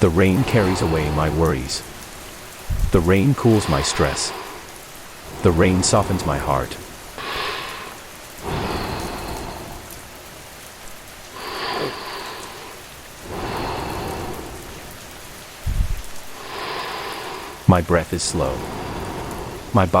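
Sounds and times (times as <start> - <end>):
steady rainfall hiss: 0.0 - 20.0
short low thump: 2.7 - 3.0.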